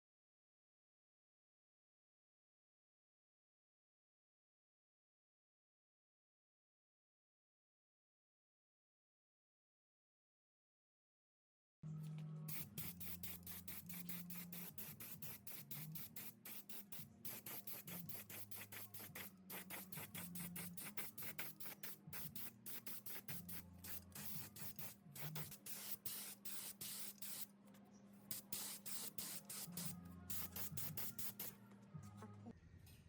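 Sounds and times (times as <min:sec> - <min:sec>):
spray hissing in bursts: 0:12.5 - 0:27.4, 0:28.3 - 0:31.5.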